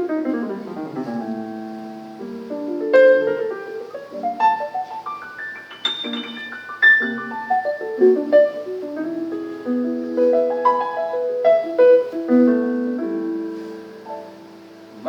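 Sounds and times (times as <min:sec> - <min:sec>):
jazz piano playing: 0:00.0 - 0:15.0.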